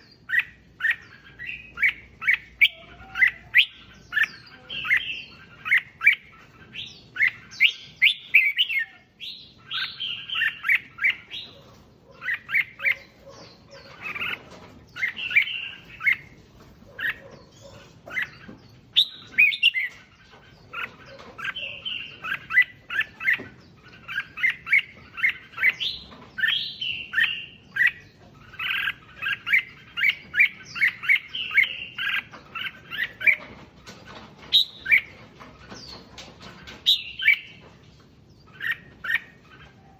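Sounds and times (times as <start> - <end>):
bulbuls singing: 0.0 - 39.9.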